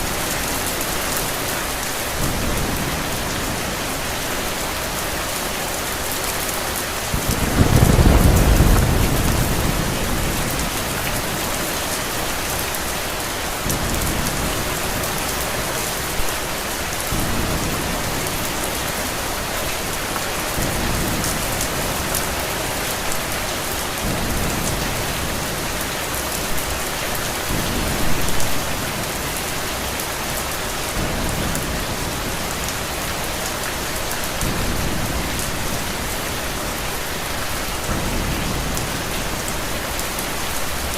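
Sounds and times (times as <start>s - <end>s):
steady rain: 0.0s - 40.9s
thunder rumbling: 6.7s - 12.7s, 13.5s - 23.4s.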